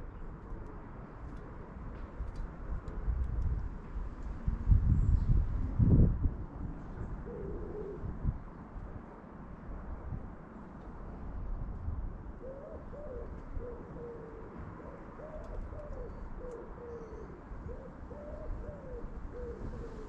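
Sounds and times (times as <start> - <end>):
bird hooting calls: 7.2 - 8.0, 12.4 - 20.0.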